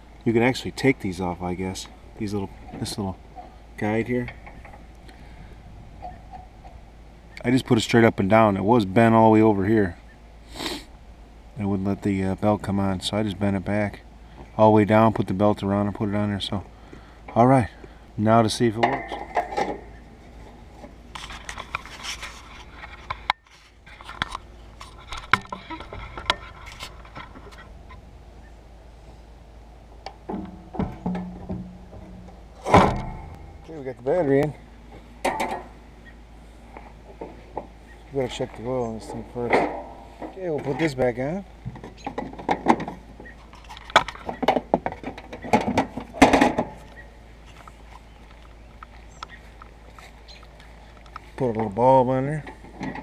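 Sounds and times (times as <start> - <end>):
clicks knocks and scrapes of parts: 18.8 - 28.0, 30.0 - 33.8, 35.2 - 35.8, 41.7 - 51.8, 52.4 - 53.0.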